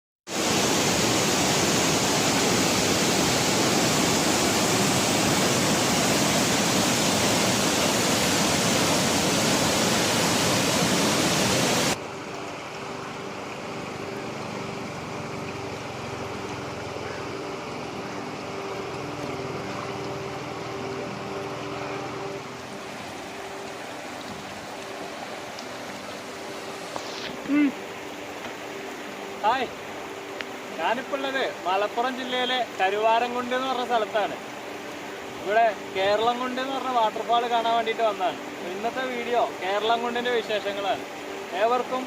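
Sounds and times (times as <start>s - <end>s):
waterfall roaring: 0.3s - 42.0s
steady hiss: 21.8s - 42.0s.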